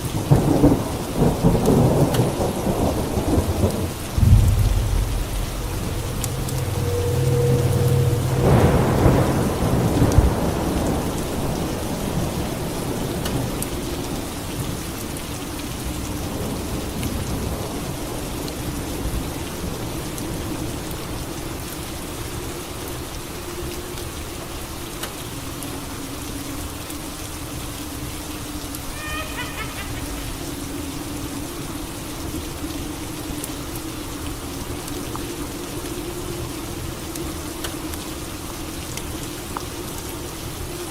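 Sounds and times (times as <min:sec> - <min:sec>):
steady rainfall: 0:00.0 - 0:40.9
thunder rumbling: 0:00.2 - 0:13.0.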